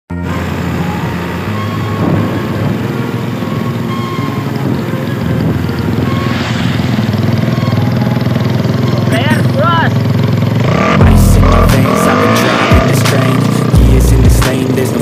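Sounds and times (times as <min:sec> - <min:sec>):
motorcycle engine running: 0:00.2 - 0:15.0.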